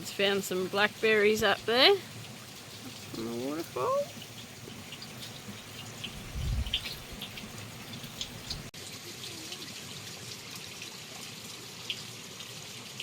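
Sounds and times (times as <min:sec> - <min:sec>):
small waterfall trickling: 0:00.0 - 0:13.0
water dripping ticks: 0:00.1 - 0:08.7.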